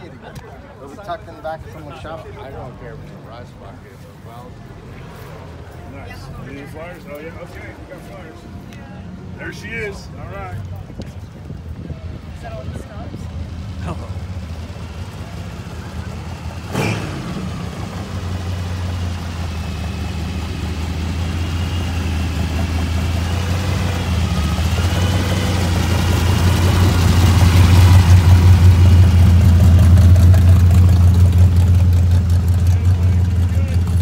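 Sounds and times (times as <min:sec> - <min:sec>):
truck engine rumbling: 0:00.0 - 0:34.0.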